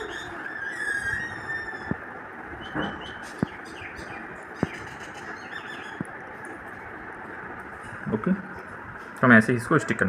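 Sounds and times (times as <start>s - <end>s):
small birds chirping: 0.0s - 7.0s
steady background hiss: 0.0s - 10.0s.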